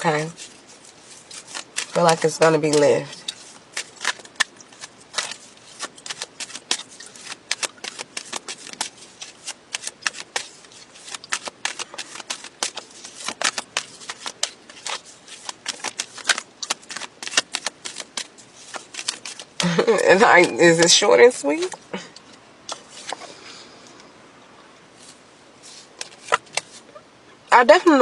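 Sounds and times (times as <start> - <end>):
cards being shuffled: 0.0 - 23.4, 25.0 - 27.0.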